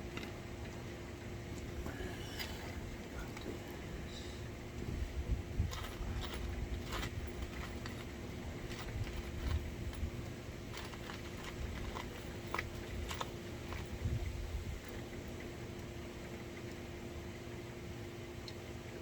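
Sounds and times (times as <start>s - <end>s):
steady low hum: 0.0s - 19.0s
light clicks and taps of hands working: 5.7s - 14.0s.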